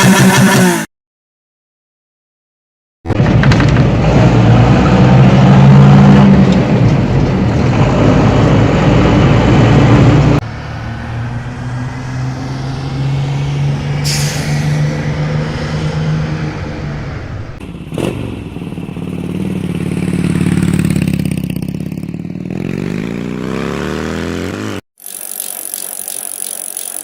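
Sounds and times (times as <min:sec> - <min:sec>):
air brake hiss: 0:14.0 - 0:15.0.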